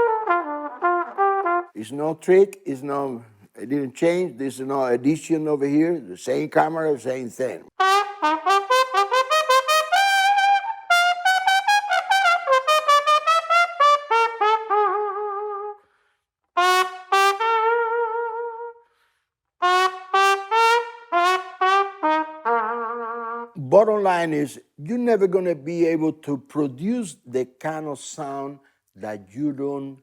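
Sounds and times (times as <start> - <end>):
solo trumpet playing: 0.0 - 1.8, 7.8 - 15.9, 16.6 - 19.0, 19.6 - 23.6.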